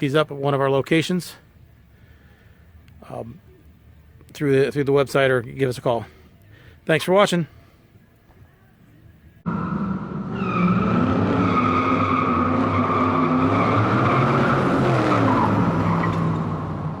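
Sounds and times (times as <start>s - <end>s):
tires squealing: 9.5s - 17.0s.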